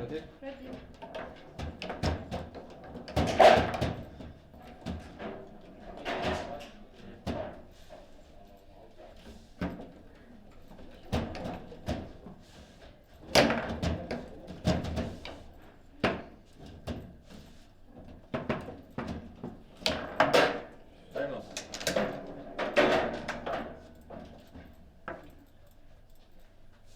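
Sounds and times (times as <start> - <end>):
table football knocks and clacks: 0.8 - 5.5.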